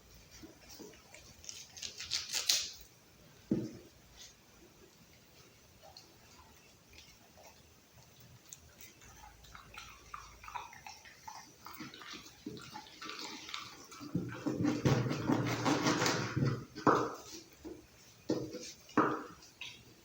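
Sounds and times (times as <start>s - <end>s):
dog chewing raw meat: 4.9s - 20.0s.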